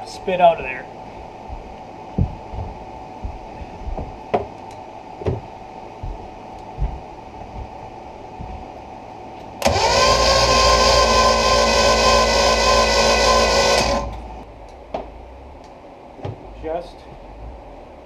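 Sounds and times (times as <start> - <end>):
starter motor cranking engine: 9.6 - 14.3.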